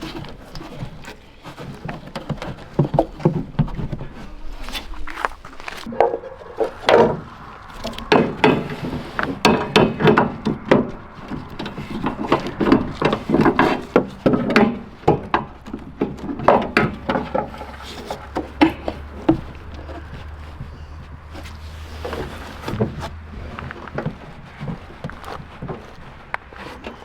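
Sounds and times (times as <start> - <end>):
steady low hum: 3.4 - 23.5
hand tools knocking and clattering: 5.8 - 27.0.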